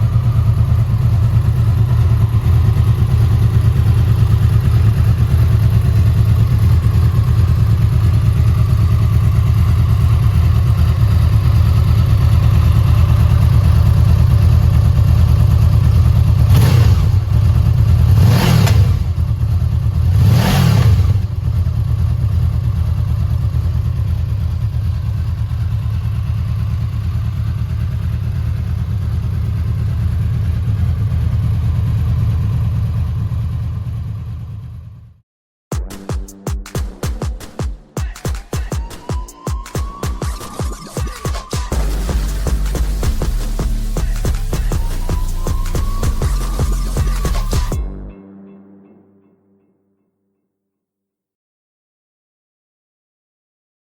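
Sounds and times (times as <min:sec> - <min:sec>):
motorcycle engine idling: 0:00.0 - 0:20.2, 0:21.1 - 0:35.1, 0:41.1 - 0:47.9
motorcycle engine revving: 0:00.0 - 0:34.8, 0:41.4 - 0:47.9.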